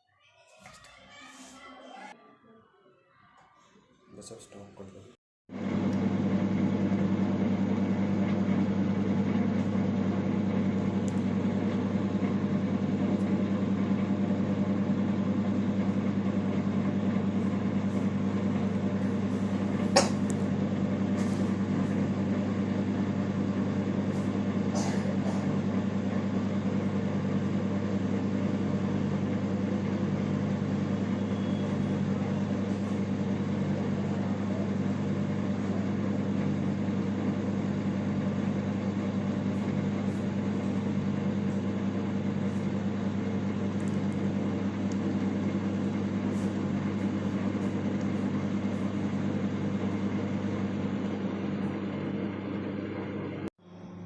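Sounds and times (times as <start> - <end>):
microwave oven humming: 5.5 - 54.0.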